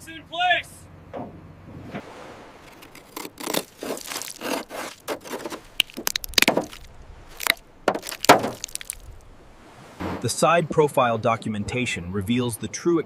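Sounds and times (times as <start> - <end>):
rough scraping strokes: 1.8 - 10.3.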